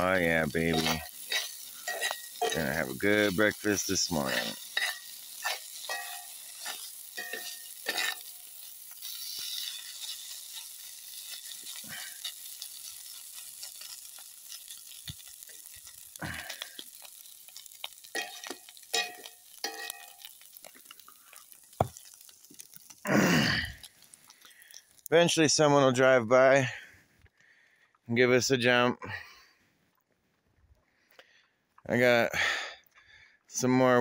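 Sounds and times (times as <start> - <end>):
food sizzling in a skillet: 0.0 - 25.2
spatula scraping a pan: 0.6 - 15.0.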